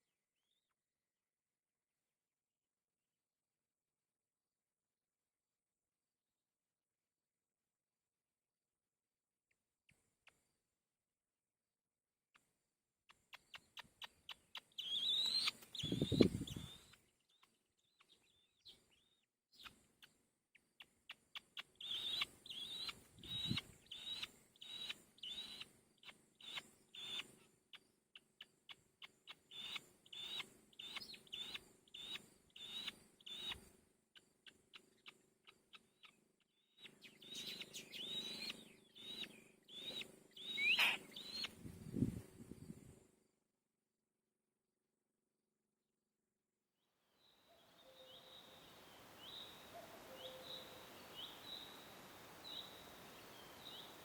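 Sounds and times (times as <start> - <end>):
small birds chirping: 12.4 - 43.1, 47.2 - 54.0.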